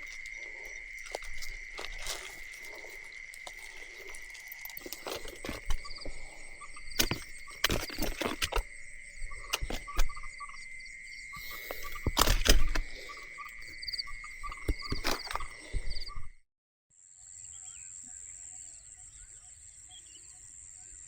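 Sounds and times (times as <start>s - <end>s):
pulsed frog calls: 0.0s - 16.3s
crickets chirring: 0.0s - 16.4s.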